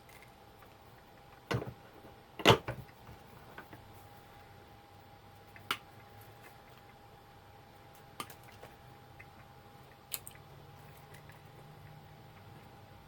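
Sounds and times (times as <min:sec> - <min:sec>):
faint steady hum: 0:00.0 - 0:13.0
sharp clicks of small parts: 0:10.1 - 0:10.4.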